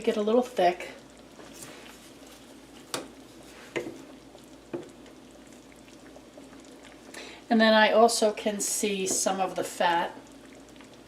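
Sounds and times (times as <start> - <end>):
gravy bubbling in a pan: 0.0 - 11.0.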